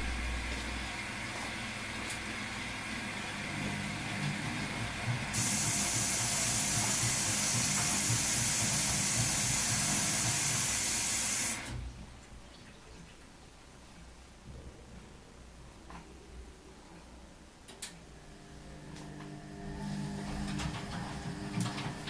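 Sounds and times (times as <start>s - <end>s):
water rushing through washing machine: 0.0s - 12.0s, 18.2s - 22.0s
washing machine pulsing hum: 0.0s - 22.0s.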